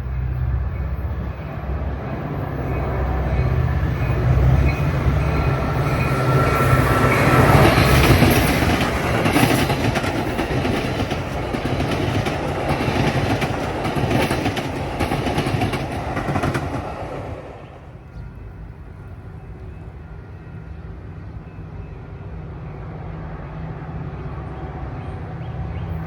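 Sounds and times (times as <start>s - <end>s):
train passing rumble: 0.0s - 26.0s
wheels clicking over rail joints: 4.0s - 17.3s.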